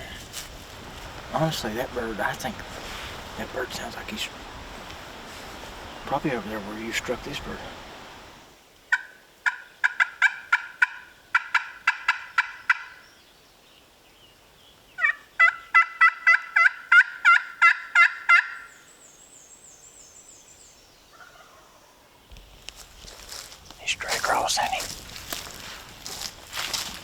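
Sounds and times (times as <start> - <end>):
turkey call yelps: 8.9 - 13.0, 15.0 - 18.7.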